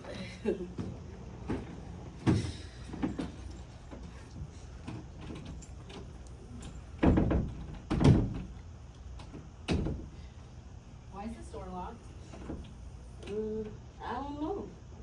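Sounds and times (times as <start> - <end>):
door knocking against frame: 7.0 - 8.5
heavy thumps: 7.0 - 8.6.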